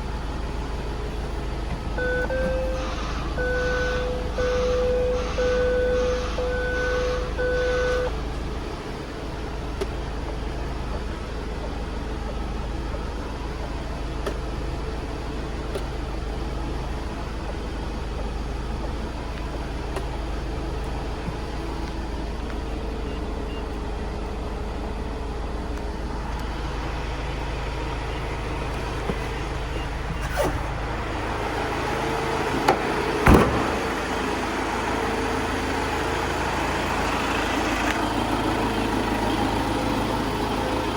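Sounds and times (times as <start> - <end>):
van engine running: 0.0 - 40.9
sharp knocks: 32.6 - 34.1.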